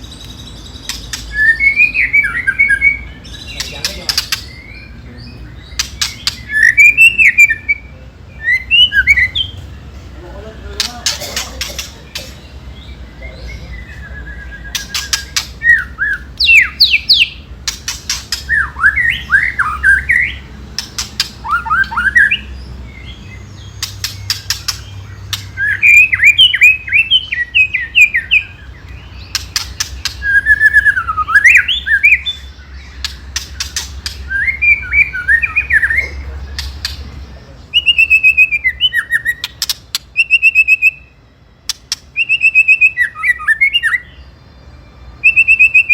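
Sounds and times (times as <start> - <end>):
bird whistled song: 0.0 - 10.0, 11.6 - 45.9
bird harsh rattling clicks: 10.8 - 12.4, 17.6 - 18.5, 20.7 - 21.4, 29.3 - 30.2.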